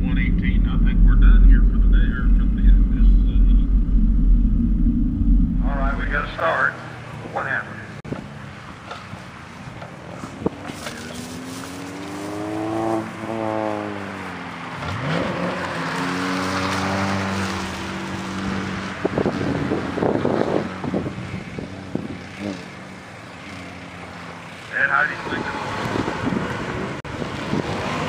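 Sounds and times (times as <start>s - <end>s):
rough engine crackling: 0.0s - 6.5s
car engine revving: 0.0s - 6.9s.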